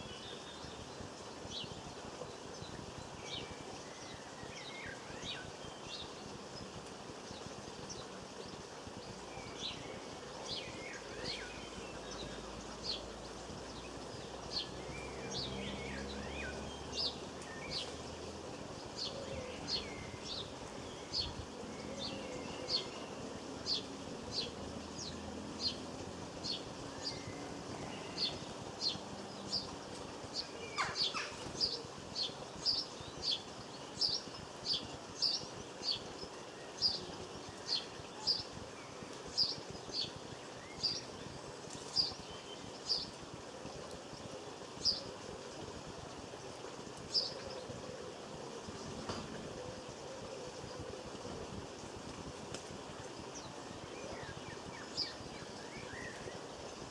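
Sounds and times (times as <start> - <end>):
small birds chirping: 0.0 - 56.9
long falling bird call: 26.6 - 41.2.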